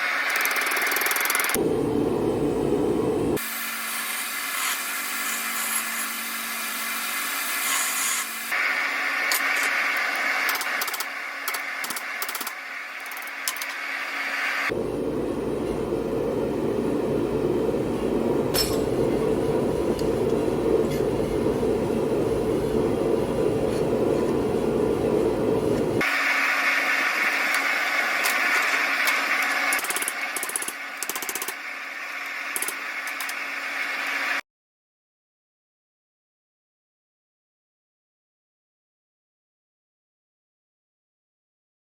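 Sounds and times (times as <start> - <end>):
gas forge burner rumbling: 1.5 - 3.4, 14.7 - 26.0.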